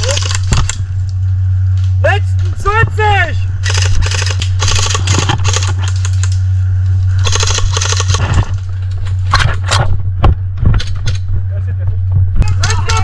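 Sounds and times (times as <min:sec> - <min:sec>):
steady low hum: 0:00.0 - 0:13.0
airsoft guns firing: 0:03.6 - 0:06.0.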